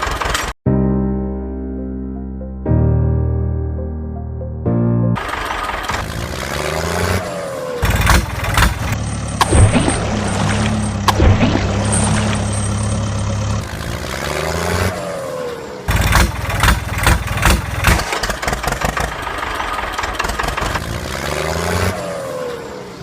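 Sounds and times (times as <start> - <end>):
vehicle engine winding down: 5.2 - 23.0.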